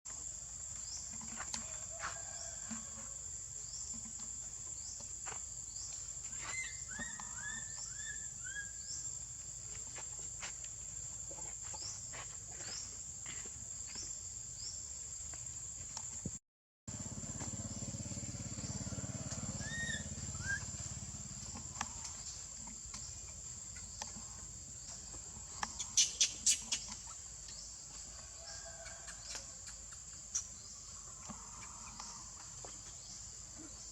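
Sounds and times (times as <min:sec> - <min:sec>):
short chirping calls: 0:25.7 - 0:27.2.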